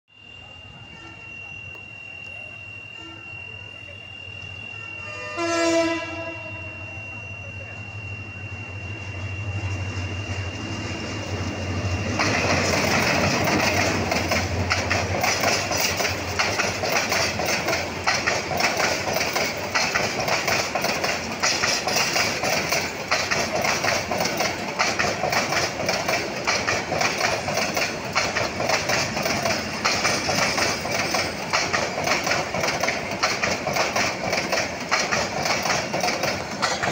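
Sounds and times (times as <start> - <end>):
diesel locomotive engine drone: 0.1 - 36.9
passing train coaches rushing: 0.2 - 36.9
wheels clattering over rail joints: 11.2 - 36.9.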